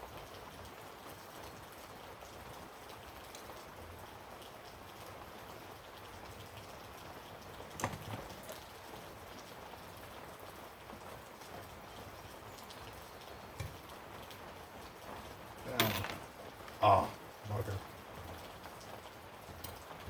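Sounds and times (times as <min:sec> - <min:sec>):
steady background hiss: 0:07.7 - 0:20.0.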